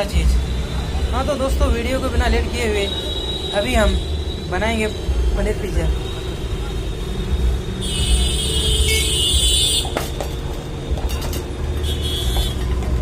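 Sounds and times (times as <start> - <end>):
road traffic rumbling: 0.0 - 13.0
vehicle horn: 7.8 - 10.1, 11.8 - 12.7.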